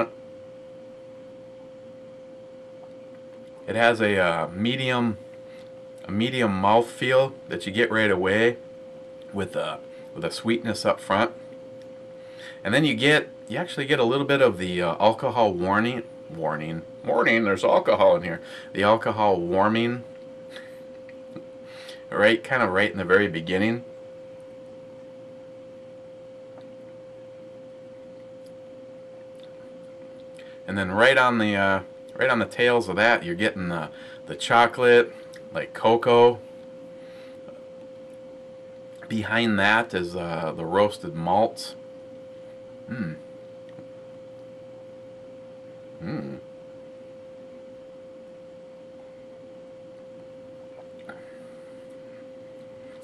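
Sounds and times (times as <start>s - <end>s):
faint room hiss: 0.0s - 53.0s
steady electrical whine: 0.0s - 53.0s
steady sine tone: 0.0s - 53.0s
person murmuring: 42.9s - 43.3s, 46.0s - 46.4s.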